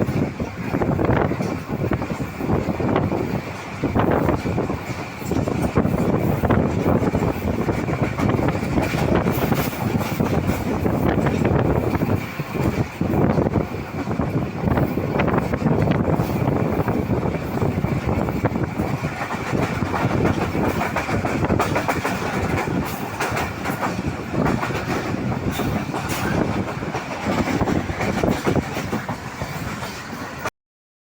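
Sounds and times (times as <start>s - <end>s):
train rumbling: 0.0s - 30.5s
wheels clattering over rail joints: 0.0s - 30.5s.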